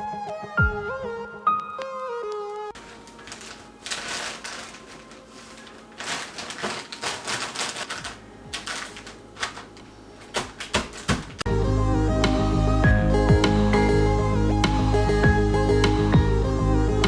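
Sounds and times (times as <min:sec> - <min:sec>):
cookies crunching: 0:02.8 - 0:09.9.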